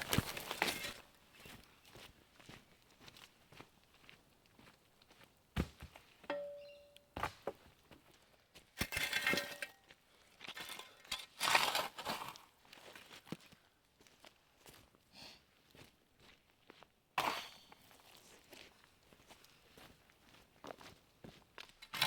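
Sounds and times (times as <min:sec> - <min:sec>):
rustling and scraping: 0:00.0 - 0:01.1, 0:08.8 - 0:09.8
metallic clink: 0:06.3 - 0:07.1.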